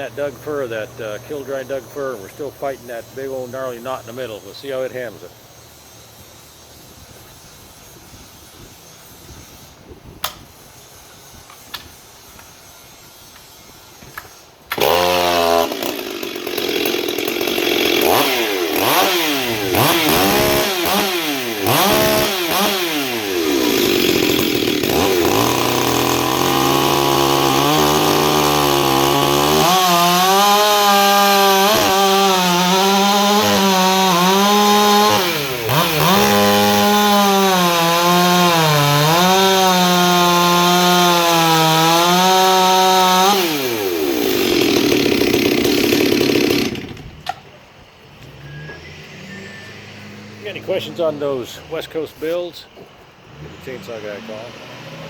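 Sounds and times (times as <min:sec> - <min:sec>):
chainsaw revving and cutting wood: 0:00.0 - 0:05.3, 0:14.7 - 0:47.4, 0:48.3 - 0:52.5, 0:53.2 - 0:55.0.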